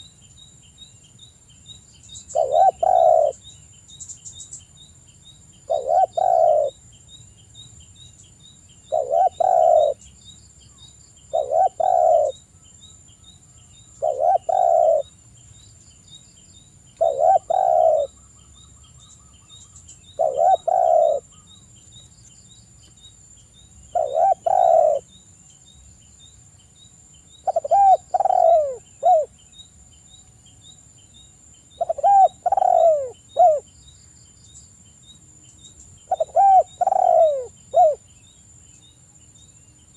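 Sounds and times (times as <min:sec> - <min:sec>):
dove cooing: 0:02.3 - 0:03.4, 0:05.7 - 0:06.8, 0:08.9 - 0:10.0, 0:11.3 - 0:12.4, 0:14.0 - 0:15.1, 0:17.0 - 0:18.2, 0:20.0 - 0:21.4, 0:23.9 - 0:25.1, 0:27.4 - 0:29.3, 0:31.8 - 0:33.7, 0:36.1 - 0:38.0.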